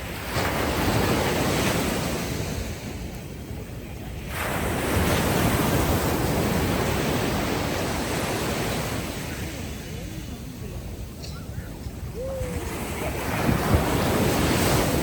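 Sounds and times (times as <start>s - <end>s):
ocean waves washing ashore: 0.0s - 15.0s.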